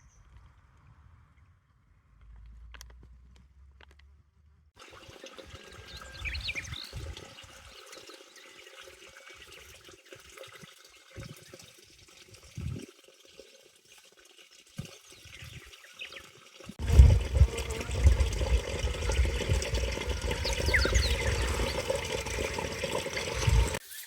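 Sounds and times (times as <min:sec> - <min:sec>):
stream water running: 0:04.8 - 0:24.0.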